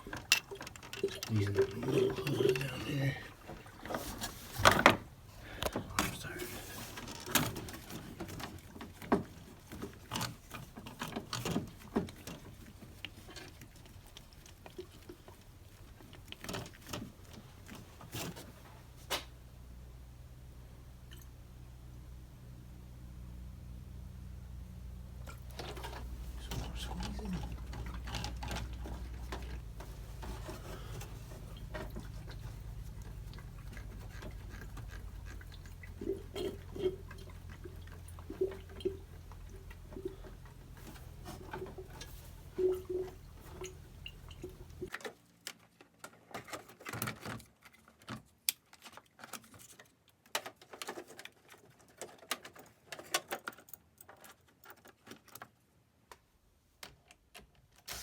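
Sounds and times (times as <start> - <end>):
coolant gurgling and bubbling: 0.0 - 17.7, 25.2 - 44.9.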